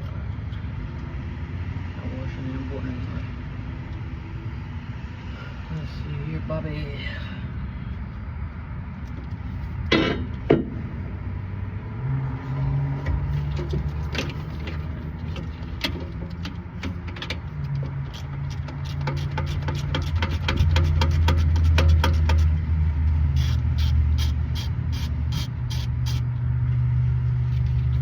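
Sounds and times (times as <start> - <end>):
low engine hum: 0.0 - 28.0.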